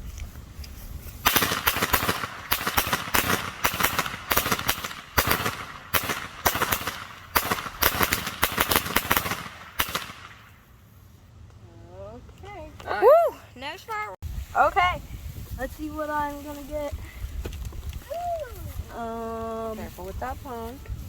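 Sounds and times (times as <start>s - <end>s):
firecrackers banging: 1.2s - 10.6s.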